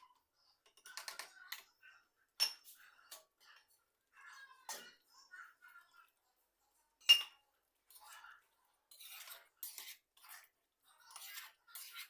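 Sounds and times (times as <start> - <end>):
spoon scraping pot: 0.0 - 12.0
metal spoon clinking on pot: 7.0 - 7.4.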